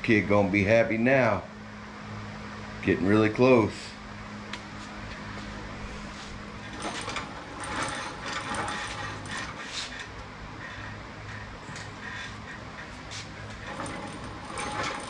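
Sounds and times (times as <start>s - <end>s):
metal tools clinking and scraping: 6.6s - 10.2s, 11.7s - 15.0s.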